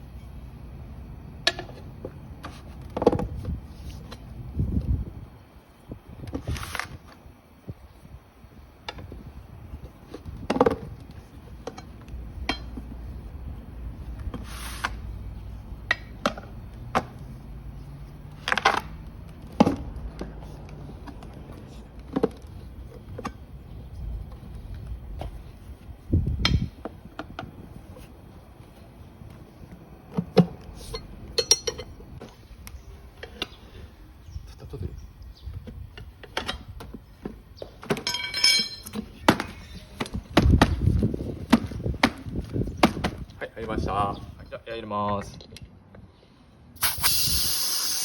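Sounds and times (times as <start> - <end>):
metal tyre levers clinking on rim: 11.6 - 12.9, 30.8 - 32.2, 37.8 - 39.3.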